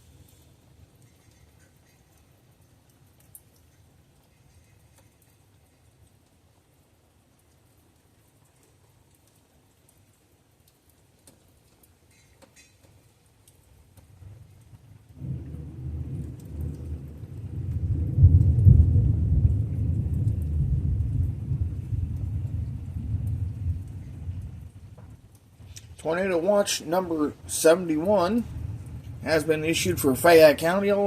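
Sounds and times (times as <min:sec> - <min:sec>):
faint rain ticks: 0:00.0 - 0:31.0
thunder rumble: 0:14.3 - 0:31.0.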